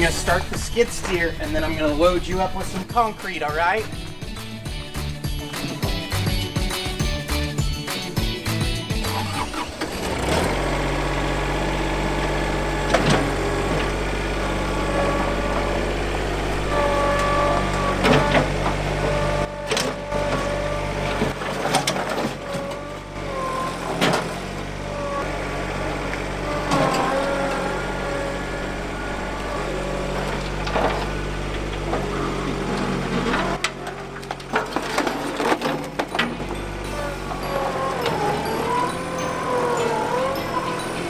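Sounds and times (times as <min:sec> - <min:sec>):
skid steer engine running: 0:00.0 - 0:41.0
sharp knocks and clanks: 0:09.8 - 0:23.1, 0:29.3 - 0:39.2.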